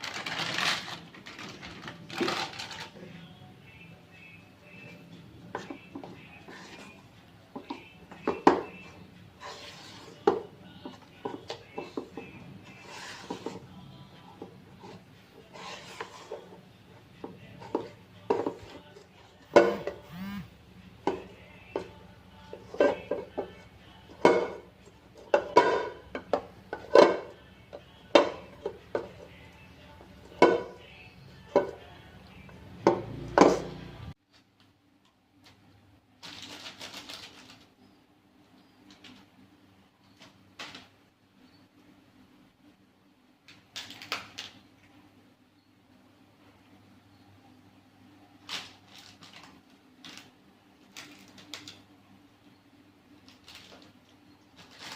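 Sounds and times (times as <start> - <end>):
utensils clattering on dishes: 21.1 - 23.6, 24.2 - 24.6, 25.2 - 27.4, 30.2 - 30.8.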